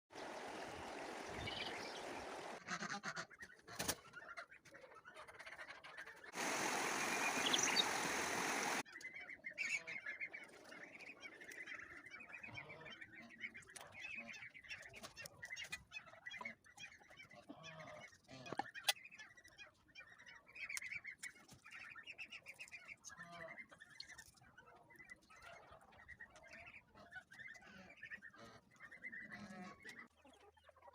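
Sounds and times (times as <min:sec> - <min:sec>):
poultry calling: 0:00.3 - 0:05.7, 0:26.9 - 0:30.6.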